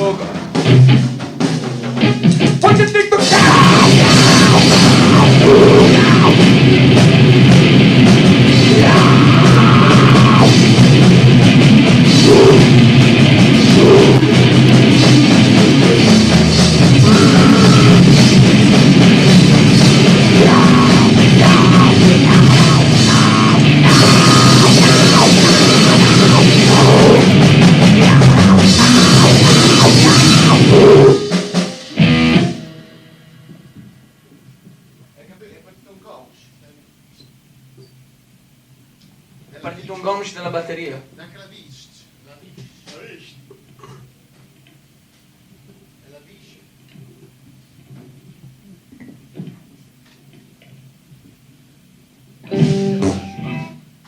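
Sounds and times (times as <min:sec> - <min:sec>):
pounding drums: 0:00.0 - 0:34.0
heavily distorted guitar: 0:00.0 - 0:34.2, 0:52.3 - 0:54.0
noise rock band: 0:00.0 - 0:35.2, 0:47.6 - 0:54.0.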